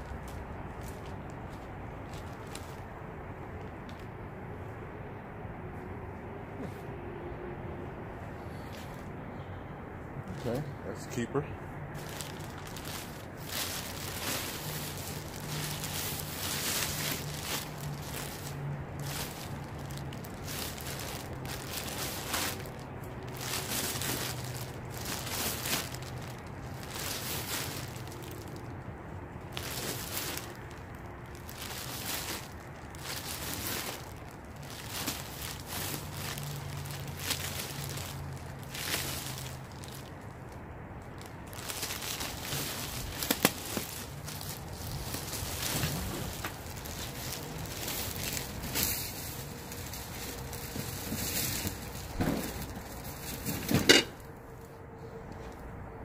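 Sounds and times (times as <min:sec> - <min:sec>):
objects rustling and knocking: 0:41.6 - 0:54.3.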